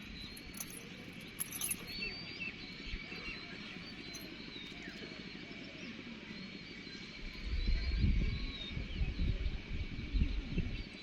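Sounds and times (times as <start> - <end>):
small birds chirping: 0.0 - 5.0.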